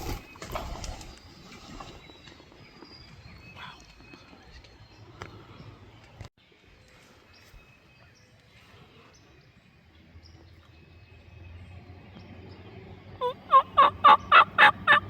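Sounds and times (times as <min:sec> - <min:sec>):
turkey yelping: 0:13.2 - 0:15.0.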